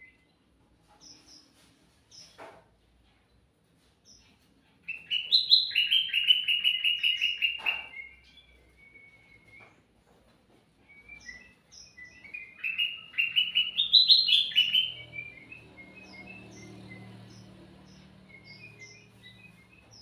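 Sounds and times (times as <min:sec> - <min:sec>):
bird singing: 0:04.1 - 0:09.9, 0:10.8 - 0:20.0.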